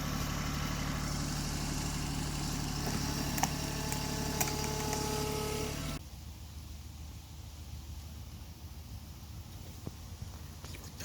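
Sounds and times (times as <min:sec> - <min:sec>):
hydraulic whine: 0:00.0 - 0:06.0
tractor diesel engine running: 0:00.0 - 0:11.0.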